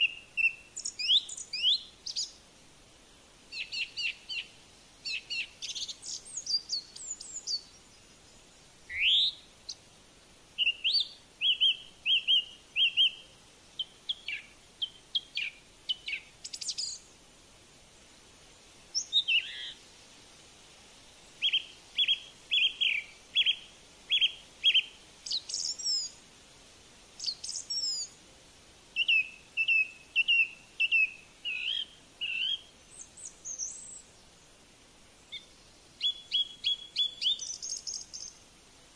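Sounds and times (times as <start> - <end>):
quavering whistled bird notes: 0.0 - 2.4, 3.5 - 8.0, 8.9 - 9.8, 10.6 - 17.1, 18.9 - 19.8, 21.4 - 26.2, 27.2 - 28.2, 29.0 - 34.1, 35.3 - 38.4
small birds chirping: 0.0 - 26.4, 27.0 - 28.2, 28.9 - 38.5.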